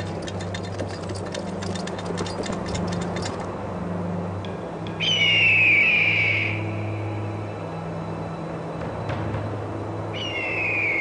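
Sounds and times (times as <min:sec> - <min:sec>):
horse hooves on stony ground: 0:00.0 - 0:03.5
low hum: 0:00.0 - 0:05.0
long falling bird cry: 0:10.1 - 0:11.0.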